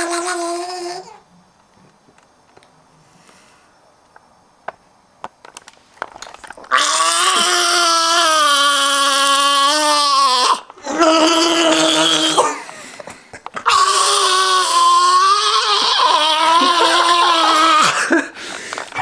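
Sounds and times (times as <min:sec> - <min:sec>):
person wailing: 0:07.0 - 0:12.6, 0:13.6 - 0:18.1.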